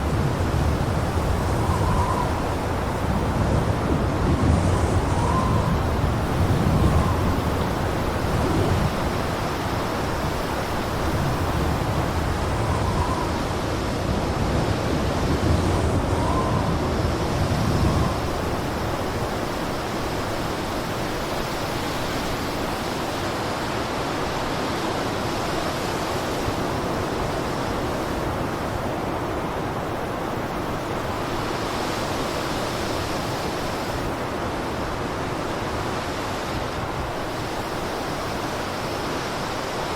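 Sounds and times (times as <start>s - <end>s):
wind whistling: 0.0s - 22.8s
blizzard wind gusting: 0.0s - 39.9s.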